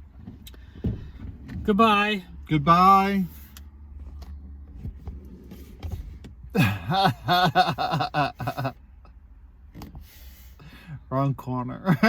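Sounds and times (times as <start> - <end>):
low steady rumble: 0.0 - 12.0
person laughing: 6.6 - 8.8.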